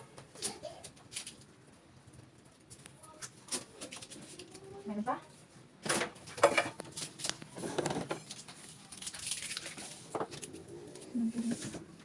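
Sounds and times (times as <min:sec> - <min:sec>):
packing tape rustling and clicking: 0:06.8 - 0:11.1.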